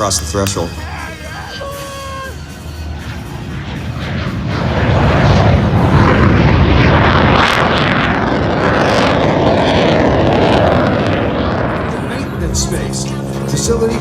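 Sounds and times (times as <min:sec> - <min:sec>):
airplane engine passing: 0:00.0 - 0:14.0.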